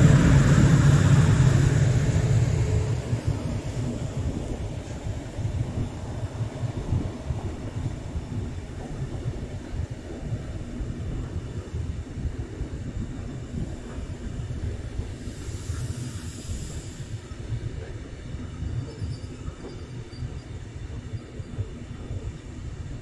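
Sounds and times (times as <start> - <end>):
train wheels rumbling: 0.0 - 23.0.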